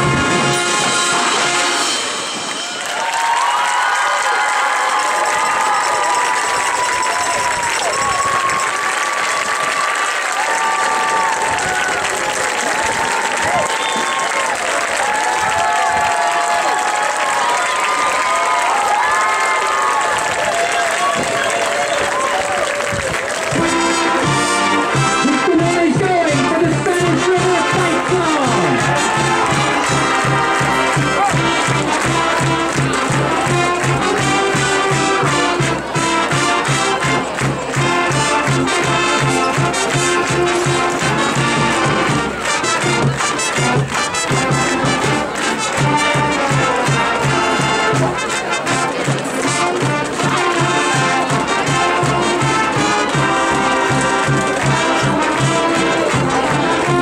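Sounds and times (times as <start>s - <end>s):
brass melody: 0.0s - 3.0s, 23.4s - 57.0s
marching percussion beat: 23.4s - 57.0s.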